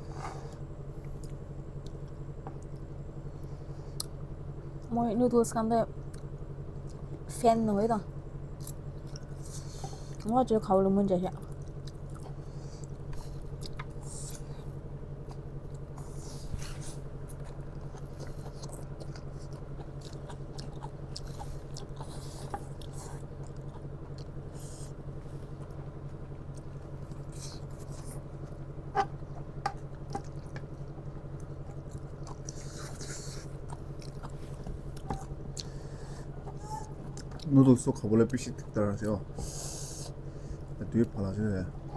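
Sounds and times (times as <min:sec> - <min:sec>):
low hum: 0:00.0 - 0:41.9
people chewing noodles: 0:08.5 - 0:10.4, 0:11.3 - 0:41.9.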